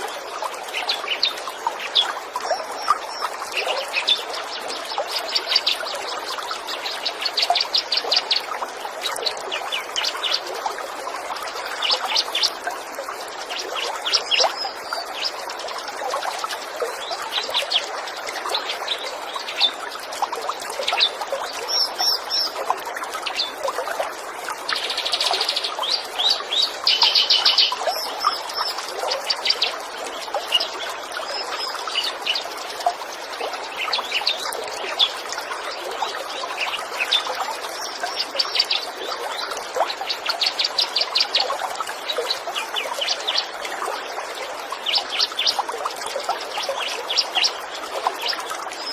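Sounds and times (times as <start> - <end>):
trickling water: 0.0 - 48.9
small birds chirping: 24.6 - 35.2.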